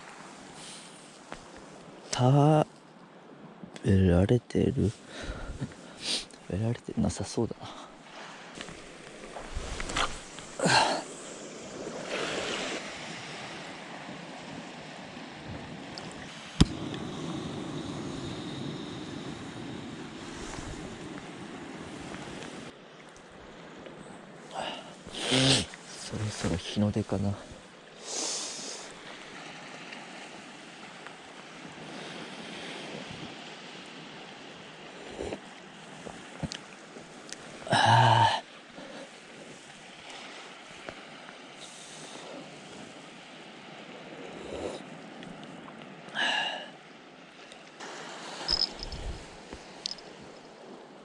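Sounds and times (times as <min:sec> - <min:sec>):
waves washing on a beach: 0:00.0 - 0:03.6, 0:04.7 - 0:51.0
wind: 0:00.0 - 0:51.0
surf washing onto beach: 0:07.9 - 0:22.8, 0:47.5 - 0:51.0.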